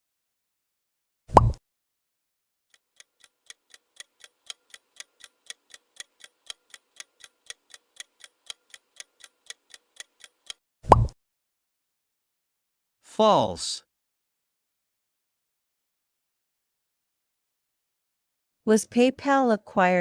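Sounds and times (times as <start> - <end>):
clock-like timer ticks: 2.7 - 10.6.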